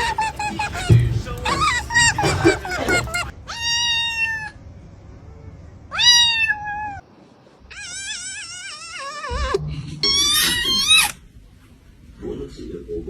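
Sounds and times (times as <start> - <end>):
kitten meowing: 0.0 - 4.6, 5.9 - 7.0, 7.7 - 11.2.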